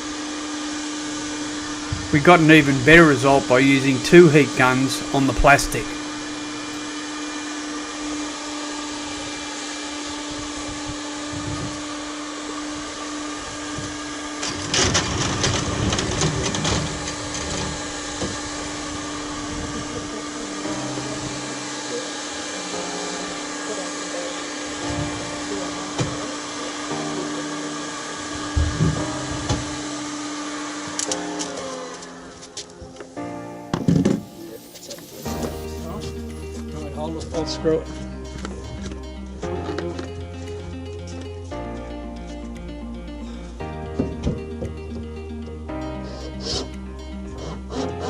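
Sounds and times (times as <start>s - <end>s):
heat guns blowing: 2.1s - 7.0s, 33.5s - 36.7s.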